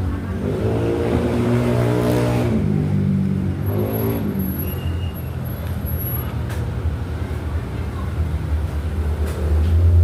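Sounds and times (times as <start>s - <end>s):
street traffic: 0.0s - 10.0s
vehicle engine revving: 0.3s - 4.6s.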